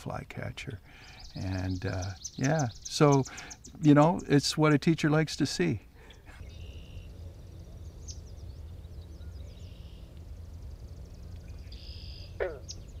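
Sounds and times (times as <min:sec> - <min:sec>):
birds chirping and singing: 0:00.6 - 0:13.0
steady low rumble: 0:06.0 - 0:13.0.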